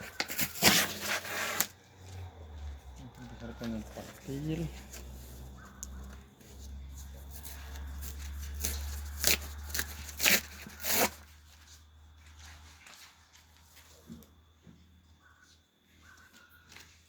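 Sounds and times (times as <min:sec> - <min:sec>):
sharp cracks of tinder: 0:08.2 - 0:11.2.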